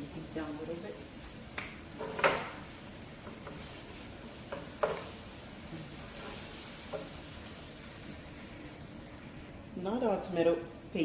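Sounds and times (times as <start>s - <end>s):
onions sizzling in a pan: 0.0s - 11.0s
spoon knocking against a pan: 4.5s - 5.1s.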